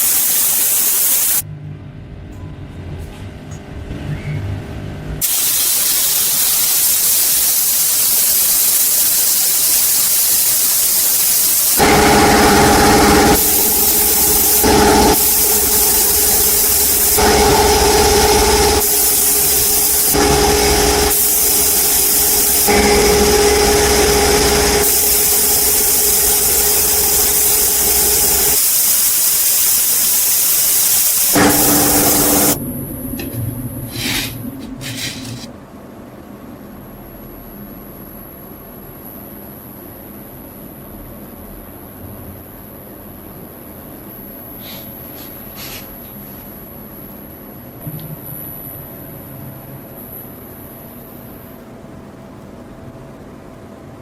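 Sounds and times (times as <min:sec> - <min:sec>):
loud steady hiss: 0:00.0 - 0:01.4, 0:05.2 - 0:32.6
motor humming: 0:11.8 - 0:28.6, 0:31.3 - 0:35.4.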